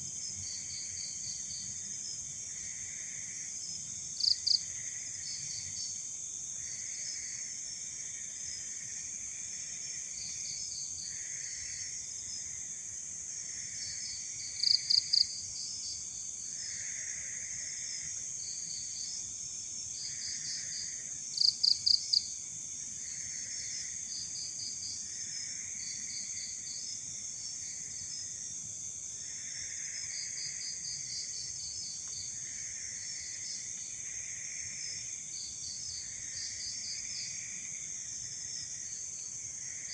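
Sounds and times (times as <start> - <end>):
crickets droning: 0.0 - 39.9
insect chirps: 0.0 - 39.9
loud close insect chirps: 0.2 - 13.0, 13.8 - 17.8, 20.0 - 37.5.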